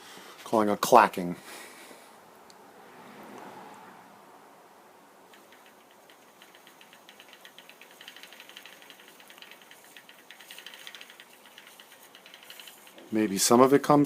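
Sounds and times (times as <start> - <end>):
bicycle chain clacking: 5.3 - 13.2.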